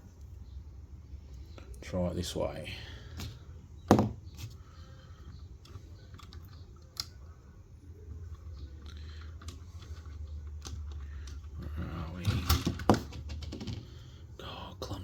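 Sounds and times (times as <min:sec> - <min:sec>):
low steady hum: 0:00.0 - 0:15.0
small plastic parts clicking: 0:05.2 - 0:07.4, 0:08.2 - 0:14.0.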